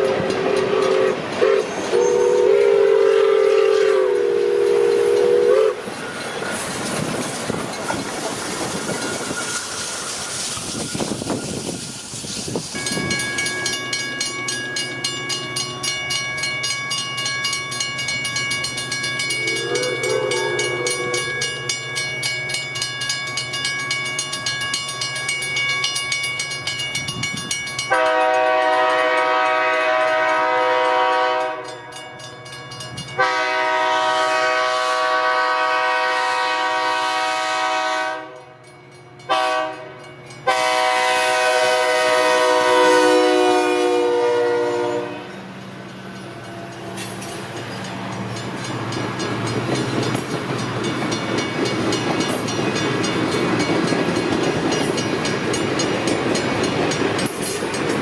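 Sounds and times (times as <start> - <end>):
train horn blasts: 0.0 - 5.9, 19.3 - 21.8, 27.9 - 31.9, 33.2 - 38.6, 39.2 - 45.4.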